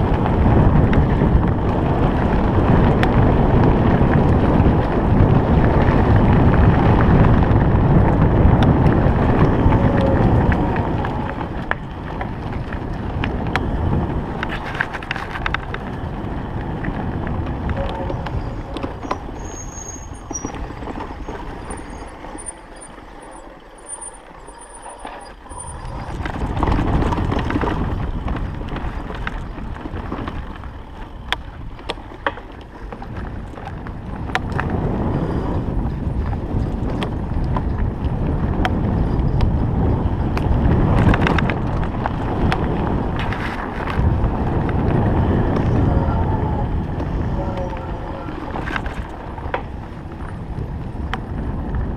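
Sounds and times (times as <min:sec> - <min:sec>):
tyre rumble: 0:00.0 - 0:51.9
wind buffeting microphone: 0:00.0 - 0:51.9
bike knocks and rattles: 0:25.9 - 0:45.9.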